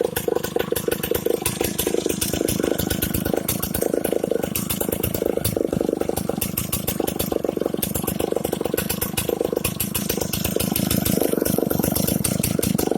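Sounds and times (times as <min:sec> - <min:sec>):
chainsaw engine running: 0:00.0 - 0:12.9.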